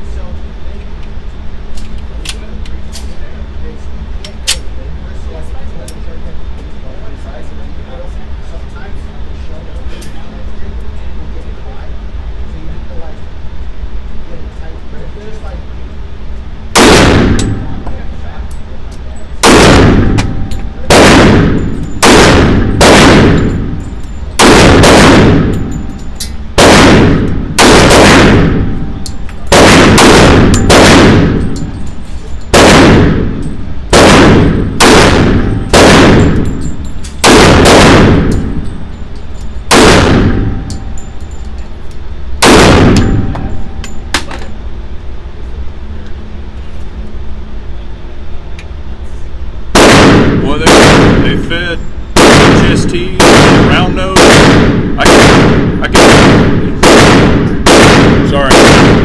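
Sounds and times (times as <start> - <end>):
pistol shots with ringing echo: 16.8 - 17.9, 19.4 - 38.8, 39.7 - 41.4, 42.4 - 44.2, 49.7 - 59.0.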